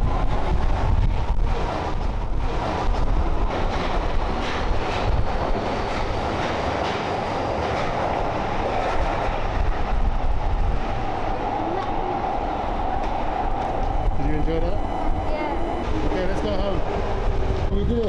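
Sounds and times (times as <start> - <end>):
subway train rumbling on rails: 0.0 - 18.0
train whine: 0.0 - 18.0.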